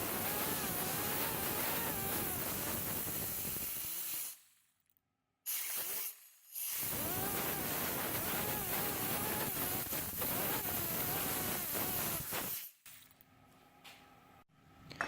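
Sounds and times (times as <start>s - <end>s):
air grinder whining: 0.0s - 4.4s, 5.5s - 12.6s
compressed air hissing: 6.7s - 12.7s.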